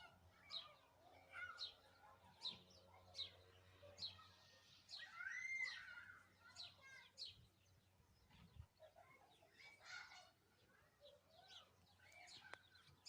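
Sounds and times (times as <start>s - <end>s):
bird chirping: 6.4s - 13.0s.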